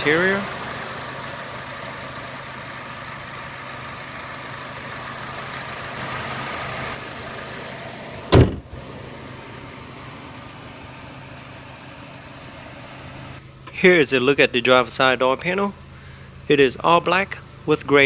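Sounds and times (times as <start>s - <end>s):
car engine idling: 0.0s - 18.0s
car door slamming: 8.3s - 8.8s.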